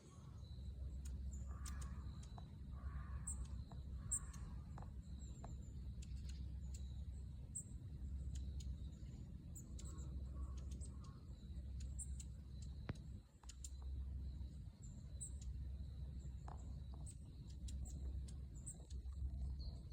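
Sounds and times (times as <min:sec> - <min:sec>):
high-pitched bird calls: 0:01.0 - 0:06.8
low rumble: 0:03.4 - 0:19.9.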